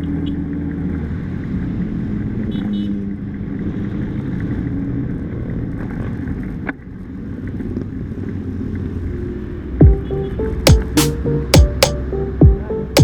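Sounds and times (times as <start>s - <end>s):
vehicle engine and road noise: 0.0s - 10.6s
sharp knock: 10.7s - 12.0s.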